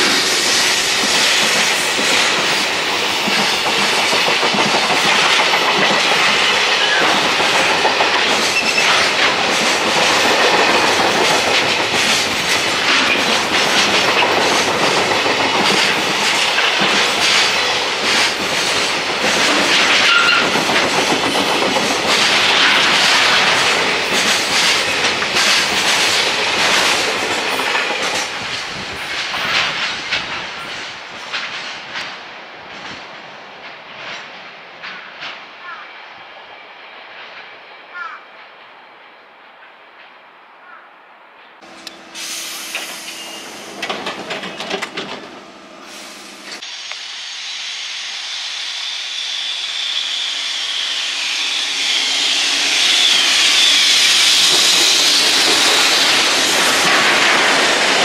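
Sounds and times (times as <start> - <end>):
train wheels clattering: 0.0 - 35.4, 41.6 - 46.6, 51.4 - 58.0.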